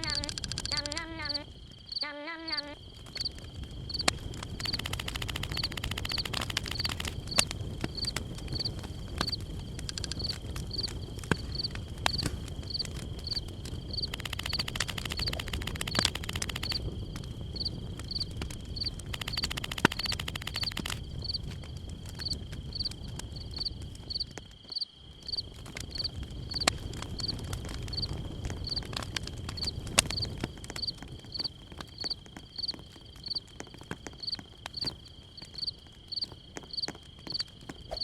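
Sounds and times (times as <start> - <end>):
scattered clicks: 0.0 - 21.6, 26.5 - 32.7
rapid buzzing ticks: 0.0 - 24.2, 25.3 - 38.0.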